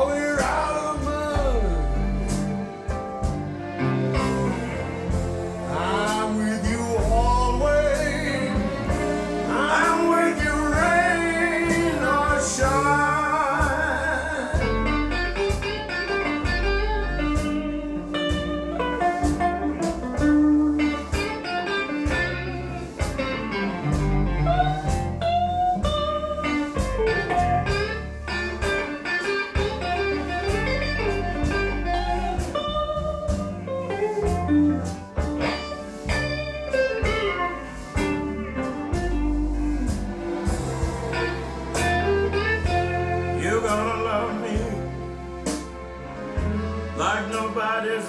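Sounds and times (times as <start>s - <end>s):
bass and drums: 0.0s - 47.8s
electric guitar solo: 14.6s - 46.0s.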